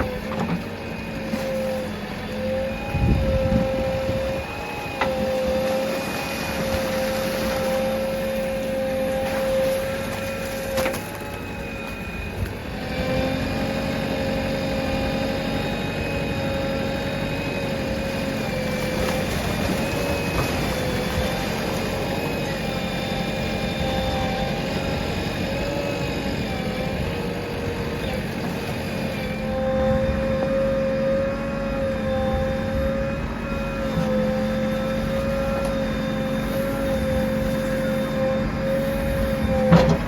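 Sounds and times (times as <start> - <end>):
diesel engine running: 0.0 - 40.0
whine: 0.0 - 40.0.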